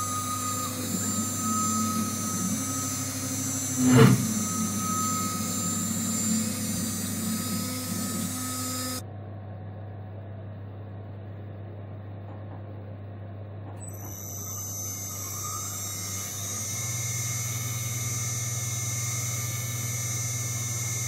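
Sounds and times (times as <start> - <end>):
mill spindle hum with high whine: 0.0 - 21.0.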